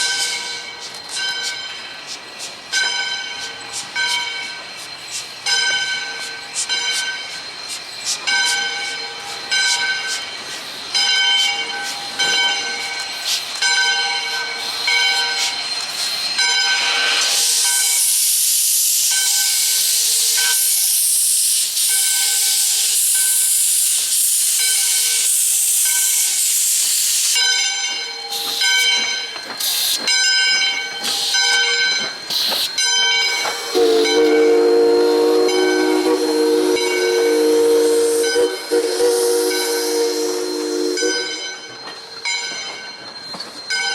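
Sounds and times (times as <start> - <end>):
locomotive bell ringing: 0.0 - 18.0, 21.9 - 23.6, 24.6 - 26.4, 27.4 - 43.9
hiss of released steam: 0.0 - 42.2
steam whistle blast: 33.6 - 41.6.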